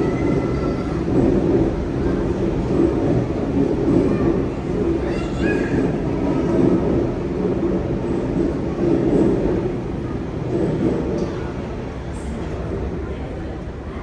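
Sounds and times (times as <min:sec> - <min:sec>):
train wheels on rail: 0:00.0 - 0:14.0.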